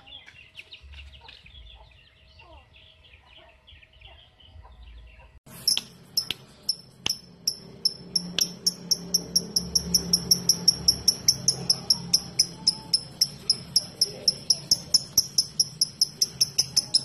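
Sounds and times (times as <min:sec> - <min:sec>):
sharp clicks: 0:05.7 - 0:17.0.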